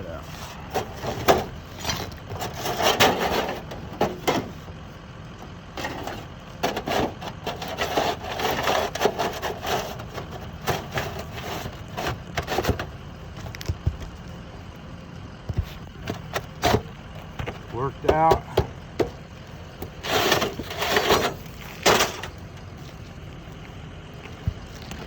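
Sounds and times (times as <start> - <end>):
knife scraping through shingles: 6.7 - 12.8, 20.0 - 22.4.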